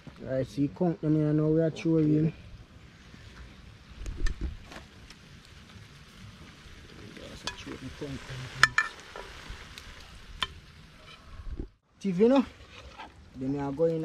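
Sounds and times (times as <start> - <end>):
crab sizzling in a metal pot: 2.1 - 11.4.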